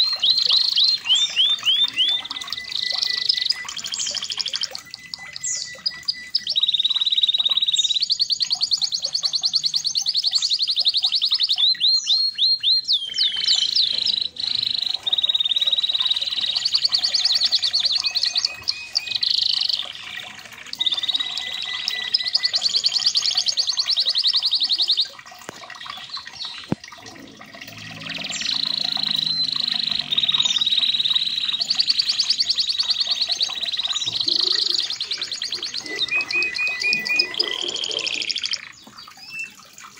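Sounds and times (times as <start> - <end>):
canary singing trills: 0.0 - 39.8.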